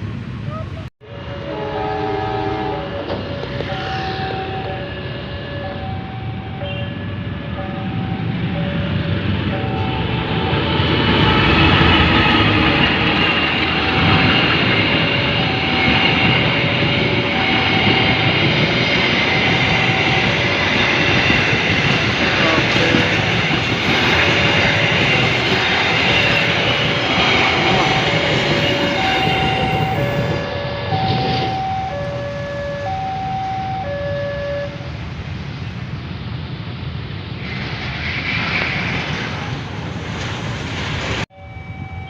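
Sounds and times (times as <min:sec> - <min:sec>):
train wheels rumbling: 0:00.0 - 0:42.0
crossing warning alarm two-tone: 0:01.0 - 0:35.0, 0:41.3 - 0:42.0
steady high-pitched tones: 0:01.0 - 0:35.0, 0:41.3 - 0:42.0.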